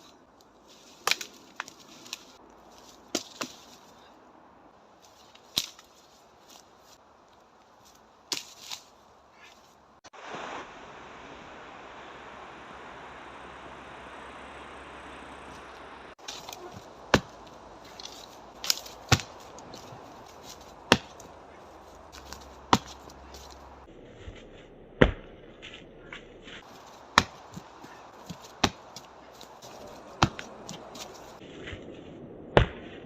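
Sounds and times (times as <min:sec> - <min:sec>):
strikes knocking on tree trunk: 0:16.2 - 0:19.9, 0:20.9 - 0:21.3, 0:27.0 - 0:29.1, 0:29.7 - 0:30.8.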